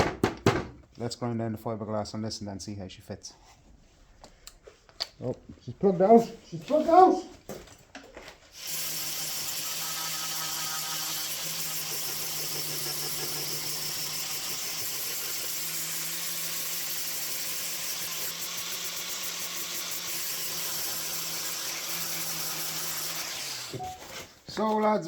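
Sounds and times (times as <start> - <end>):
angle grinder grinding fiberglass: 8.6 - 23.8.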